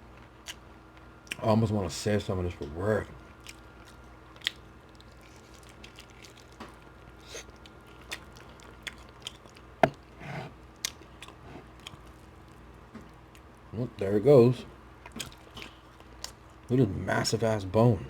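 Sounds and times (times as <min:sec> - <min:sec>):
close chewing: 0:03.2 - 0:10.0, 0:10.6 - 0:13.6.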